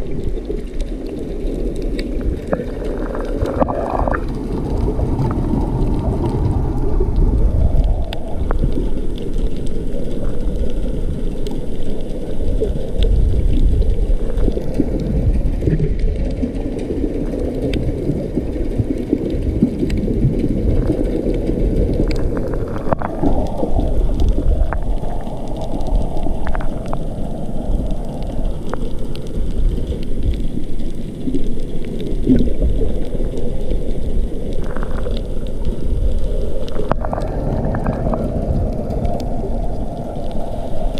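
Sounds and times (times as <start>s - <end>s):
faint clicks: 0.0s - 40.9s
underwater rumble and gurgle: 0.0s - 40.9s.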